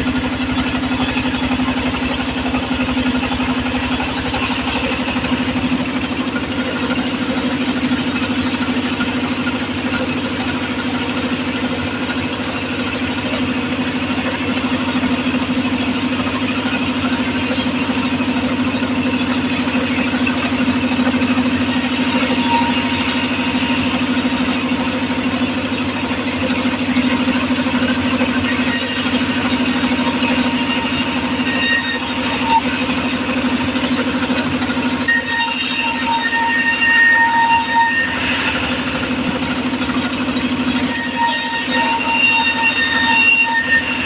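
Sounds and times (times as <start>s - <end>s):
sawmill engine running: 0.0s - 44.0s.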